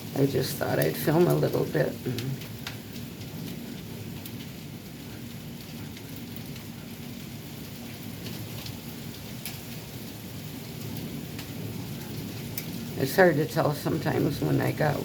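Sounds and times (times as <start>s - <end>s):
drops or hail ticking: 0.0s - 15.0s
heavy rain: 0.0s - 15.0s.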